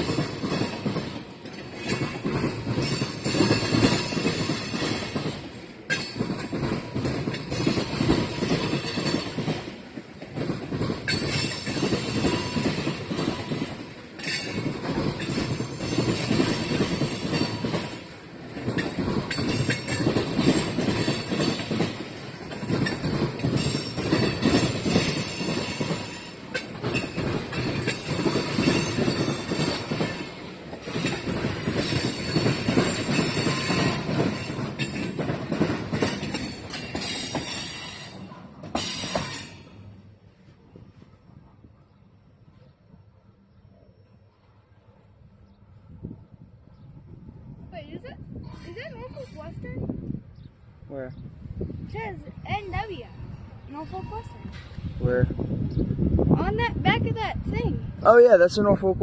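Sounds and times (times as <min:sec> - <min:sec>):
train wheels clattering over rails: 0:00.0 - 0:40.0.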